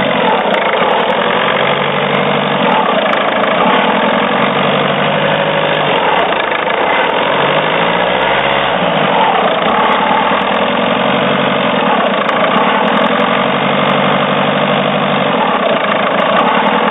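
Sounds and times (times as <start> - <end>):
car engine idling: 0.0 - 16.9.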